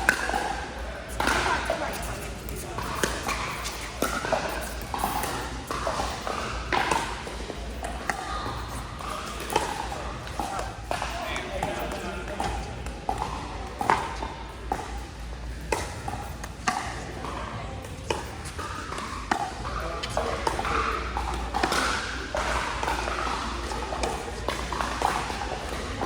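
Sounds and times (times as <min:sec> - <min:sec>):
background chatter: 0:00.0 - 0:26.0.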